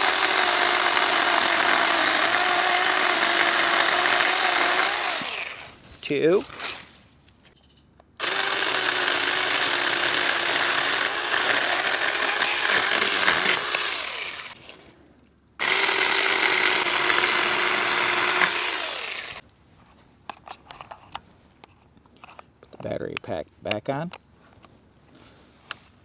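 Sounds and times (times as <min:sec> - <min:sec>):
cordless chainsaw cutting wood: 0:00.0 - 0:05.8, 0:08.2 - 0:14.7, 0:15.6 - 0:19.4.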